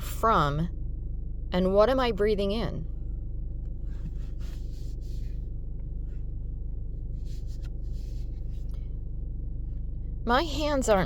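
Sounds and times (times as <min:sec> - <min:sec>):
car cabin hum: 0:01.6 - 0:11.0
soft rubbing sounds: 0:03.6 - 0:09.0.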